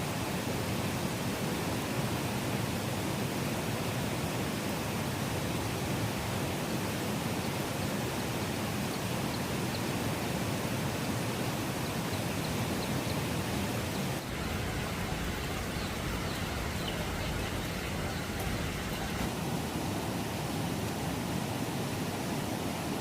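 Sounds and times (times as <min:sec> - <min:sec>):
steady rain hiss: 0:00.0 - 0:23.0
low rumble: 0:14.2 - 0:19.3.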